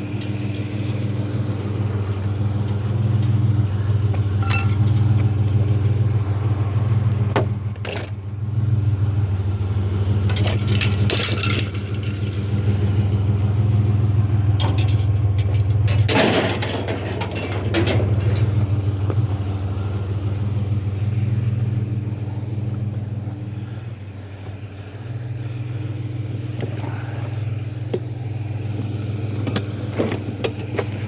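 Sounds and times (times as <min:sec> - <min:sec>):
truck engine idling: 0:00.0 - 0:31.0
items clattering and knocking: 0:04.4 - 0:06.1, 0:07.2 - 0:08.2, 0:10.3 - 0:12.6, 0:14.6 - 0:18.8.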